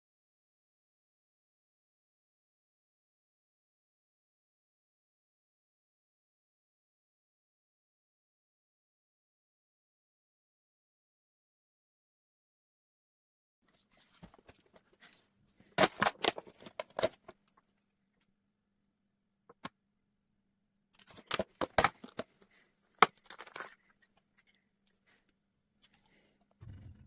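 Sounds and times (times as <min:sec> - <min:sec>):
handling clicks scrapes and rattles: 0:21.0 - 0:23.9.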